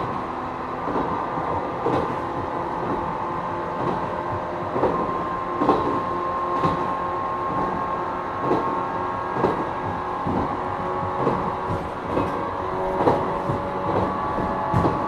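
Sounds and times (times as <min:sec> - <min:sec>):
rumble of train wheels: 0:00.0 - 0:15.0
train traction motors humming: 0:00.0 - 0:15.0
wheels clicking over rail joints: 0:09.4 - 0:15.0.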